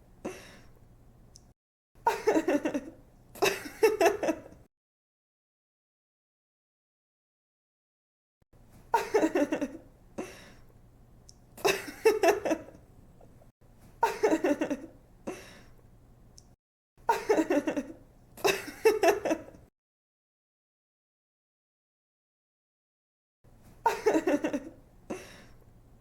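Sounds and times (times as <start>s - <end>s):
young woman laughing: 2.0s - 4.7s, 8.9s - 9.8s, 11.6s - 12.8s, 14.0s - 15.4s, 17.1s - 19.6s, 23.8s - 25.4s.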